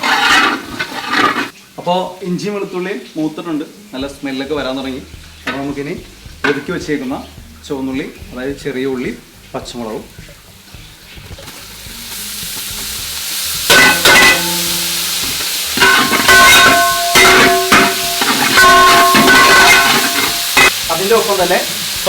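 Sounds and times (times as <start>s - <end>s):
metal spatula clanking on pan: 0.0s - 1.5s, 5.5s - 5.8s, 6.4s - 6.8s, 13.7s - 20.8s
food sizzling in oil: 0.0s - 22.0s.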